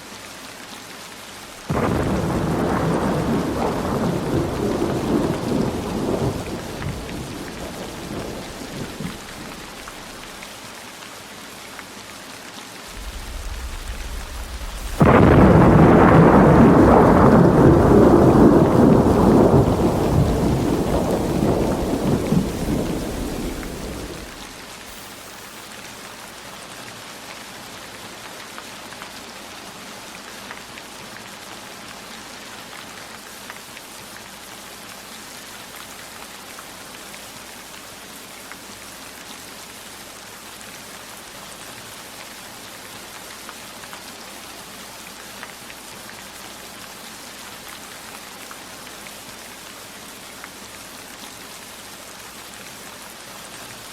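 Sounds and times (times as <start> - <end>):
heavy rain falling: 0.0 - 53.9
thunder rumbling: 1.7 - 10.4, 12.9 - 24.6.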